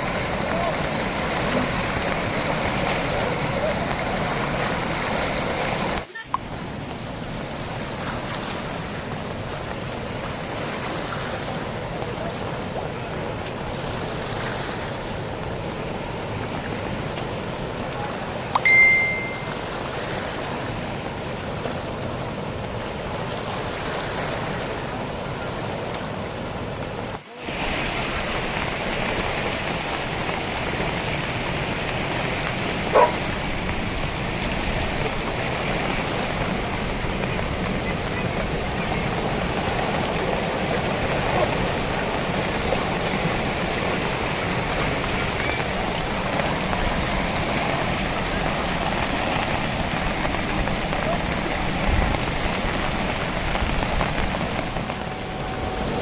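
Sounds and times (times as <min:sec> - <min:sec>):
river rushing: 0:00.0 - 0:56.0
short high tone: 0:18.6 - 0:19.6.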